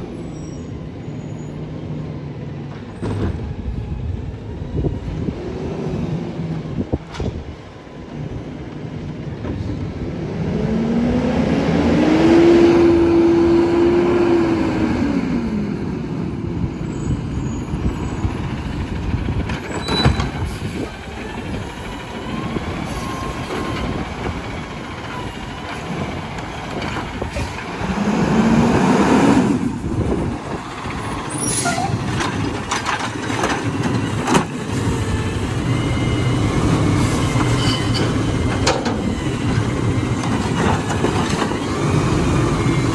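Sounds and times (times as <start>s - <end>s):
garbage truck engine revving: 10.0s - 42.9s.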